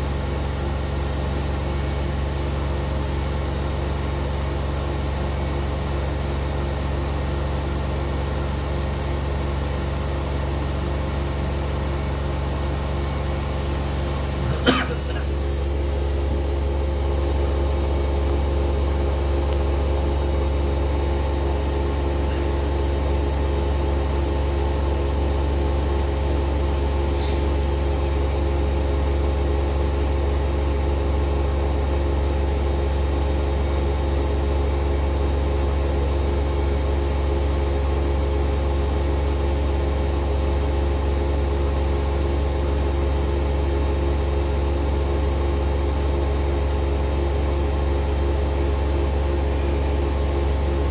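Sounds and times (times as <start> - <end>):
washing machine spinning: 0.0 - 50.9.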